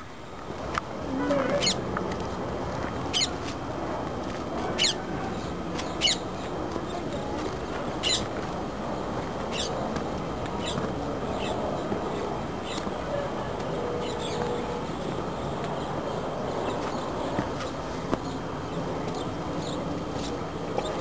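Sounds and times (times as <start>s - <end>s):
bird calling: 1.4s - 1.8s, 3.1s - 3.4s, 4.8s - 6.2s, 8.0s - 8.3s, 9.5s - 9.8s.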